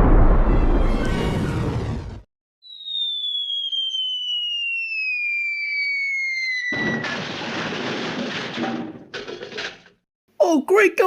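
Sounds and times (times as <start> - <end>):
cartoon falling whistle: 2.6 - 7.1
loud crash of impact: 6.7 - 9.8.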